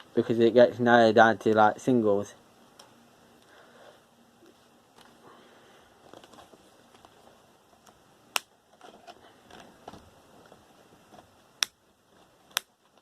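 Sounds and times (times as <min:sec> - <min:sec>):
rustling of cable being handled: 0:05.9 - 0:08.0, 0:08.7 - 0:13.0.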